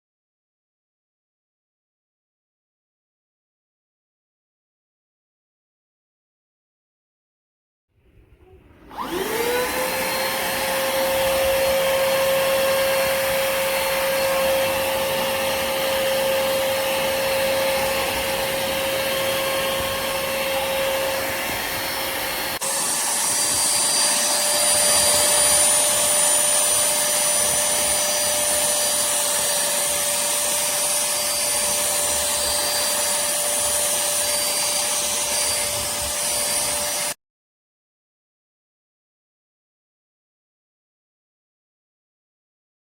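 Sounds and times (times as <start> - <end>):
handheld vacuum cleaner whine: 8.4 - 37.2.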